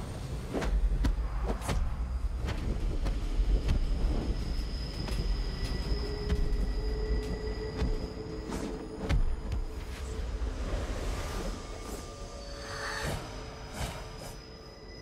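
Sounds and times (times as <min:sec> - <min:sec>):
train knocks and clacks: 0:00.8 - 0:09.8
high-pitched whine: 0:02.0 - 0:15.0.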